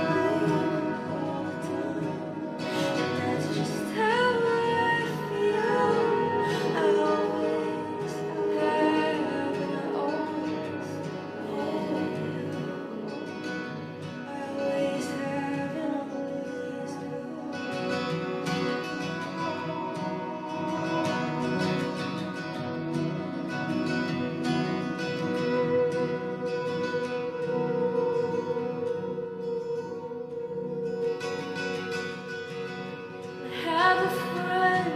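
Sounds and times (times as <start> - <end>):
woman singing: 0.0 - 23.8, 33.3 - 34.9
plucked acoustic guitar: 0.0 - 34.9.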